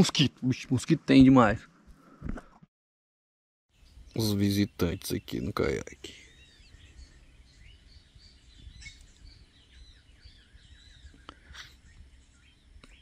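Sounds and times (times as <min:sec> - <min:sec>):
birds chirping and whistling: 0:03.8 - 0:13.0
low steady background noise: 0:03.8 - 0:13.0.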